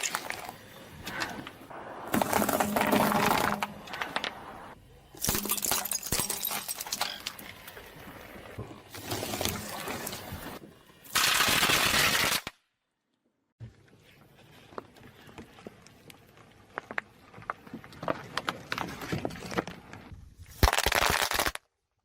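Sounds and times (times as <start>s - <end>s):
objects crunching under tyre: 0.0s - 10.6s, 14.6s - 20.1s.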